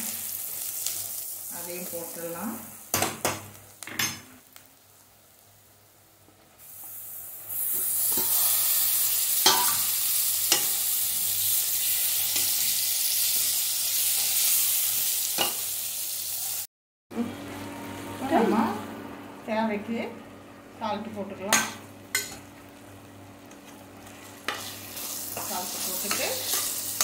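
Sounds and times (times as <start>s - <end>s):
paste sizzling in hot oil: 0.0s - 2.9s, 6.6s - 16.7s, 24.0s - 27.0s.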